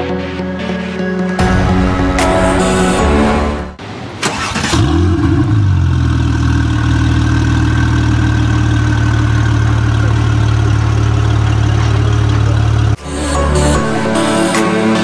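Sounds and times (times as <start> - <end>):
car engine idling: 3.8 - 13.0.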